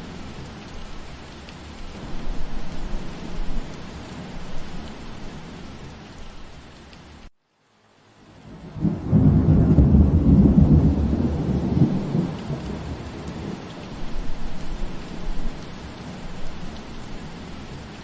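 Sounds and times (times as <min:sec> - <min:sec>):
steady rain: 0:00.0 - 0:18.0
thunder rumbling: 0:08.5 - 0:17.5.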